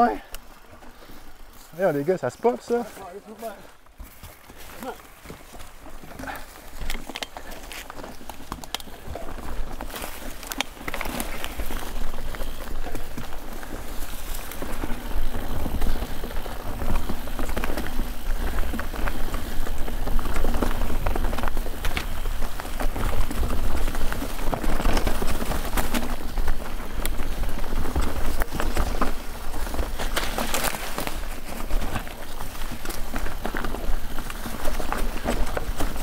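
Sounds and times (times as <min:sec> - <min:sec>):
tyres rolling over rock: 0:04.0 - 0:36.0.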